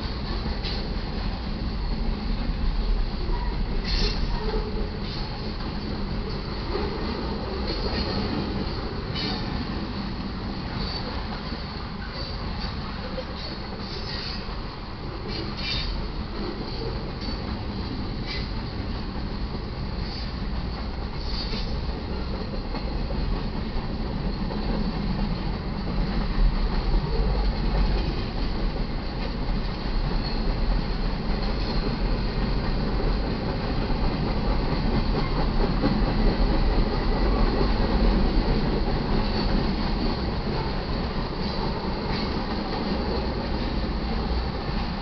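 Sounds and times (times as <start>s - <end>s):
freight train wheels rolling on rails: 0.0s - 45.0s.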